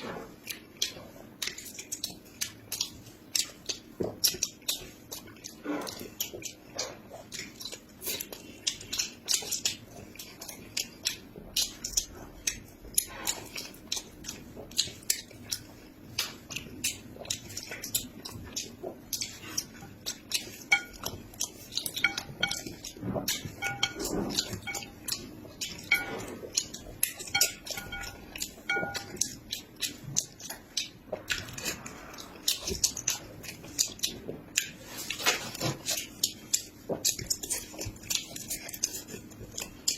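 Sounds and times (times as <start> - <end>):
chewing and biting: 0.0 - 39.9
utensils clicking on dishes: 16.2 - 39.9.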